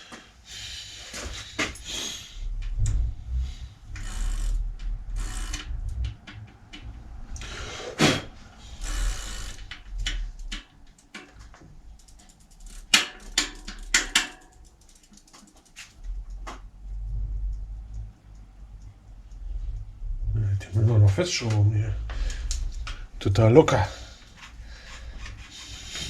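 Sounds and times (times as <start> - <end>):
low hum: 1.8 - 10.9, 15.9 - 25.4
clicks and metallic knocks: 9.7 - 16.7.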